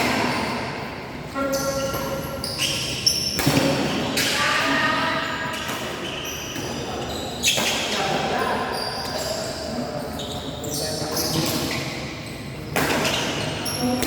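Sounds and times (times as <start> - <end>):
shoe squeaks on floor: 1.4 - 3.6, 4.4 - 14.0.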